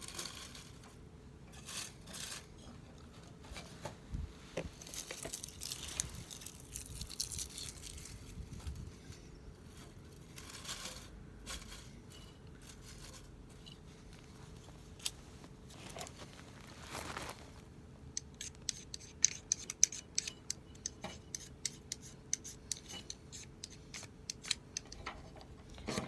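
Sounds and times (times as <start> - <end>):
scraping and crinkling: 0.0 - 17.7.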